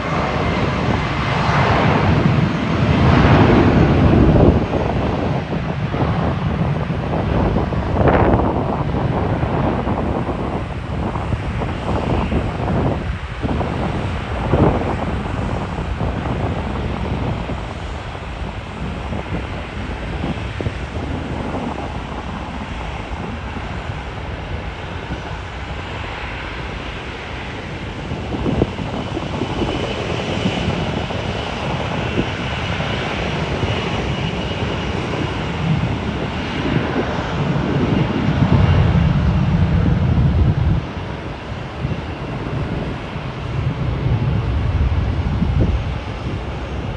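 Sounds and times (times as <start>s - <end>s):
jet engines rumbling: 0.0s - 46.9s.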